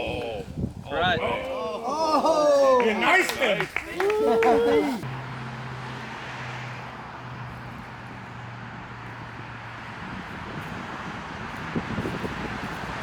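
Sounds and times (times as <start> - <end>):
low engine hum: 5.0 - 13.0.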